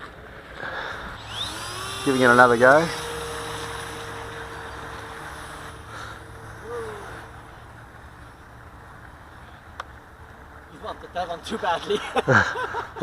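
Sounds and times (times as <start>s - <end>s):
model airplane motor whining: 1.0s - 7.8s.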